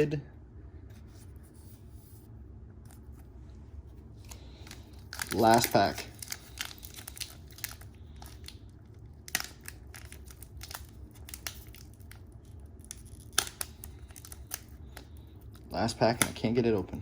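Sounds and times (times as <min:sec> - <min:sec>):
foil wrapper crinkling: 0:04.1 - 0:17.0.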